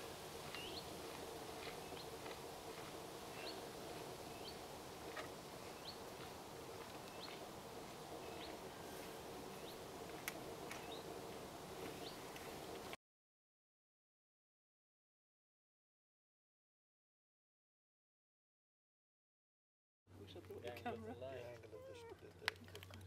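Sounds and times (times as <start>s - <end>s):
faint steady hum: 0.0s - 13.0s
small bird chirping: 0.4s - 11.2s, 11.8s - 12.6s.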